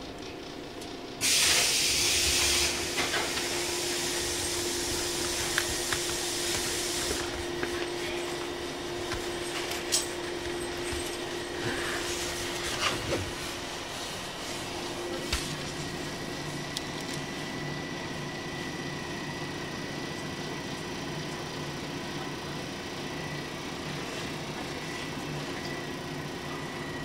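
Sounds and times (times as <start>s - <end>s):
train running noise: 0.0s - 27.0s
loud rush of hissing: 1.2s - 7.4s.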